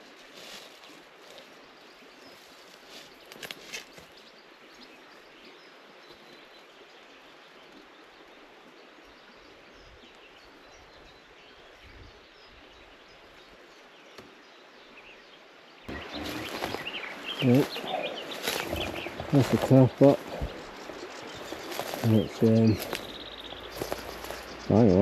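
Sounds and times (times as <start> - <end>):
faint birdsong chirps: 0.0 - 25.0
rustling and handling noise: 15.9 - 24.6.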